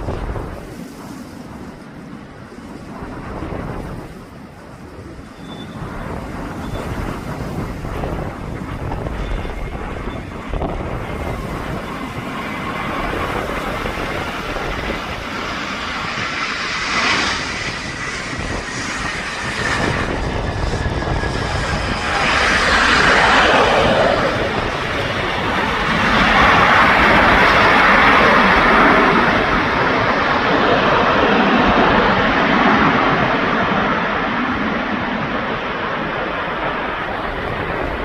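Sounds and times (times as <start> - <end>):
jet engines running: 0.0 - 38.0
wind rumbling on microphone: 0.0 - 38.0.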